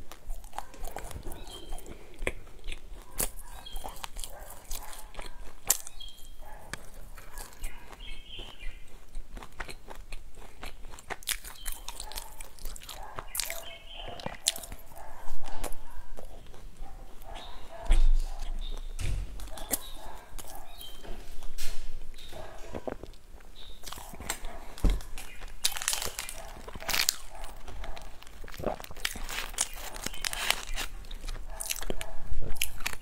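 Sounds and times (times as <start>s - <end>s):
crunchy pastry chewing: 0.0s - 33.0s.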